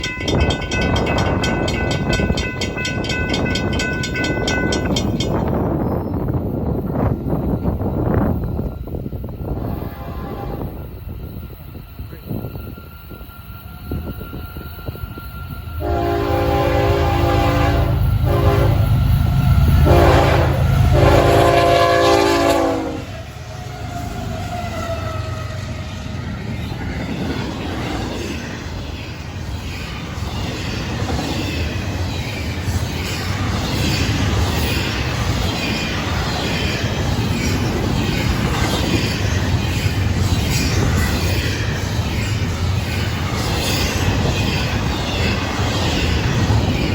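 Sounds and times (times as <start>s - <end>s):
high ringing bell: 0.0s - 8.0s
freight train rumbling by: 0.0s - 46.9s
locomotive air horn blasts: 9.7s - 10.8s, 15.8s - 19.0s, 19.8s - 23.2s.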